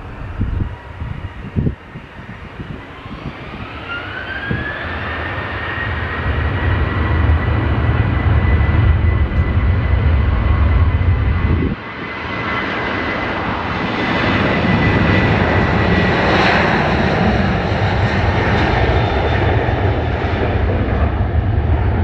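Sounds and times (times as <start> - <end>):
heavy low rumble: 0.0 - 3.6, 6.2 - 11.8
thin engine whine: 0.0 - 12.4
airliner engine roar: 0.0 - 22.0.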